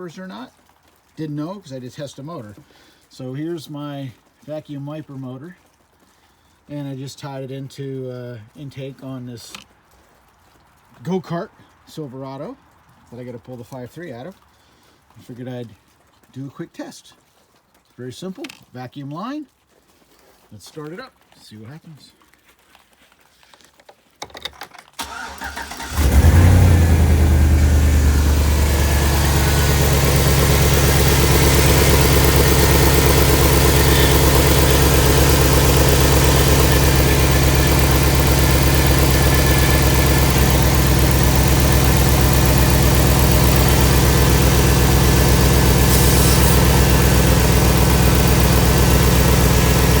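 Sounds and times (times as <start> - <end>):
truck engine idling: 25.0 - 50.0.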